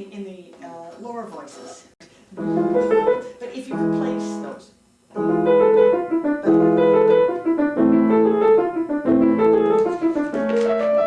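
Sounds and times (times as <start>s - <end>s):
piano playing: 2.4s - 11.0s.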